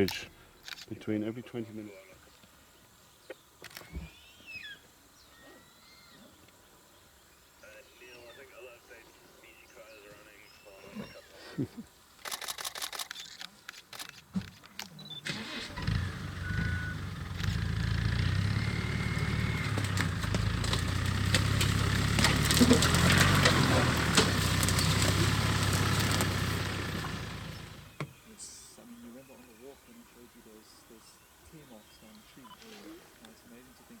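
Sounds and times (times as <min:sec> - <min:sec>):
vehicle engine starting and humming: 0:15.1 - 0:28.2
clicks and knocks: 0:18.8 - 0:28.1.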